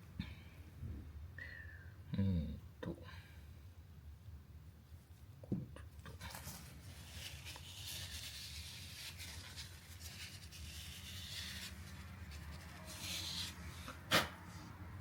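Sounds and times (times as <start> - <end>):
rubbing and scuffing: 6.2 - 14.8.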